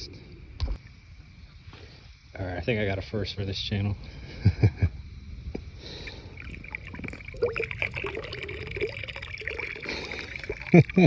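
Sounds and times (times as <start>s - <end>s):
river water splashing: 6.0s - 11.0s.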